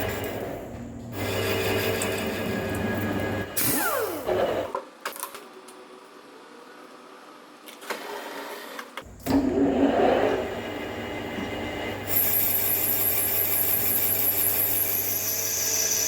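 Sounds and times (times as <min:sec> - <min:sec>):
metal lathe whine: 0:09.5 - 0:16.0.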